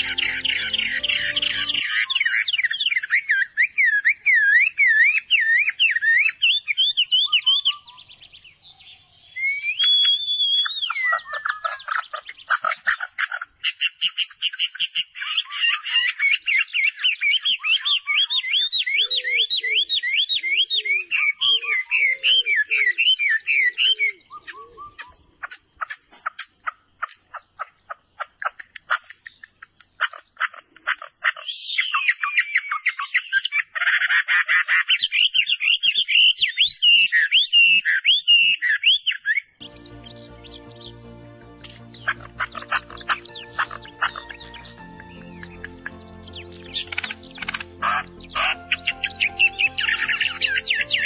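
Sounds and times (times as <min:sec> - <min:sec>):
low bird call: 0:00.0 - 0:02.6, 0:39.6 - 0:51.0
birds whistling songs: 0:00.0 - 0:51.0
dry clicking bird notes: 0:41.6 - 0:51.0.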